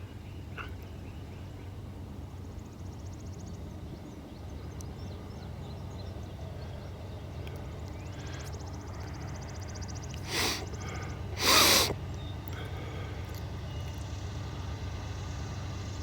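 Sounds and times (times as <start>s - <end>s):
person sniffing: 10.2s - 10.7s, 11.4s - 12.0s.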